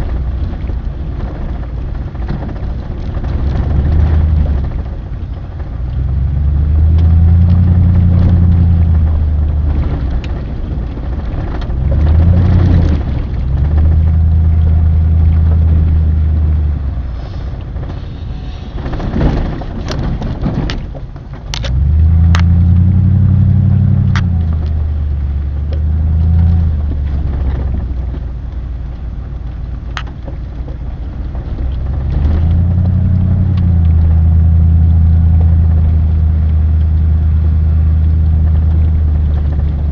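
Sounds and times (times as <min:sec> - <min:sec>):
vehicle engine revving: 0:03.1 - 0:28.3, 0:31.3 - 0:39.9
sharp clicks and knocks: 0:18.8 - 0:22.7, 0:24.0 - 0:24.8, 0:25.7 - 0:34.2.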